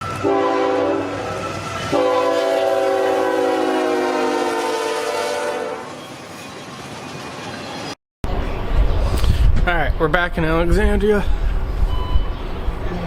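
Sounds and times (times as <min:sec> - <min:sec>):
locomotive air horn: 0:00.0 - 0:06.0
passing train rumble: 0:00.0 - 0:13.0.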